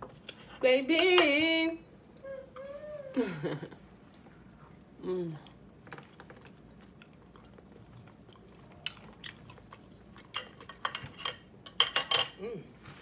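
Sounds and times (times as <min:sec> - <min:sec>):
person chewing food: 0:03.9 - 0:11.1.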